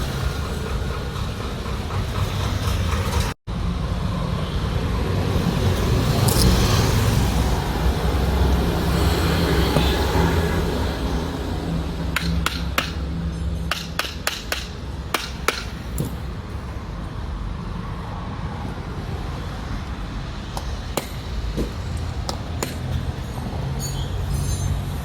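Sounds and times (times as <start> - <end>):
hand tools tapping and clicking: 12.1 - 16.3, 20.5 - 23.2.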